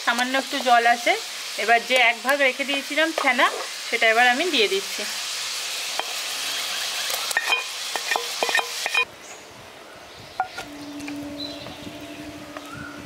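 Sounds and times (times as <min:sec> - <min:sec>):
cheese sizzling in a pan: 0:00.0 - 0:09.1.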